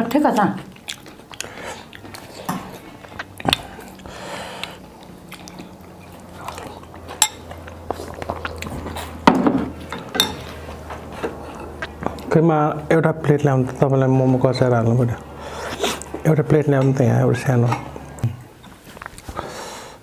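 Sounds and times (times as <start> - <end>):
soft chewing: 0.3 - 12.4, 17.9 - 19.5
cutlery clinking on a dish: 9.5 - 10.4.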